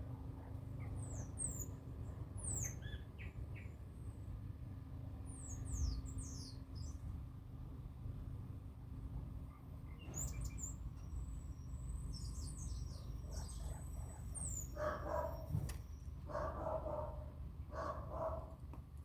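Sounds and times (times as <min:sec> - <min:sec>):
small birds chirping: 0:00.5 - 0:04.2, 0:05.3 - 0:07.0, 0:09.5 - 0:16.8.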